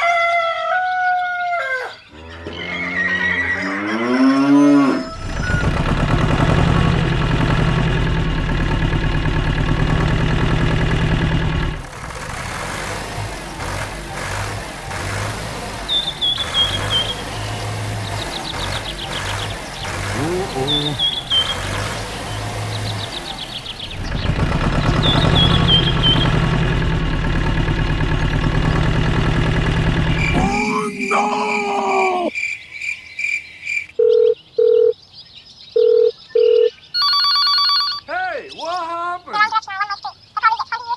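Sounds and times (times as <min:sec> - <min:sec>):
tractor engine idling: 0:05.2 - 0:30.7
high bird chirps: 0:15.9 - 0:26.5.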